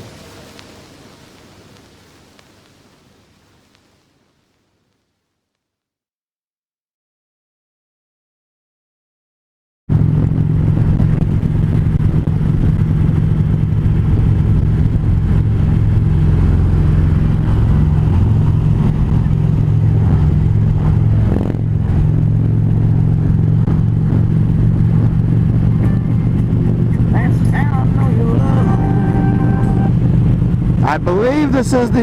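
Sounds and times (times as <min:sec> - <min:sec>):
motorcycle engine cruising: 0:09.9 - 0:32.0.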